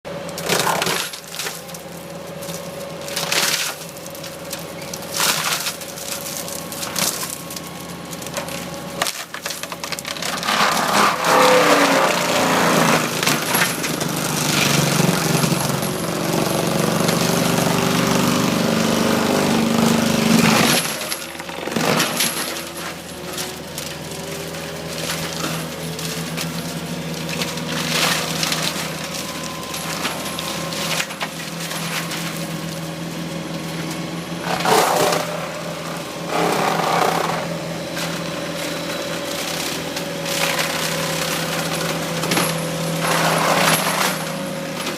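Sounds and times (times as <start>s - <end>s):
mulcher grinding brush and wood: 0.1s - 44.9s
skid steer engine running: 0.1s - 44.9s.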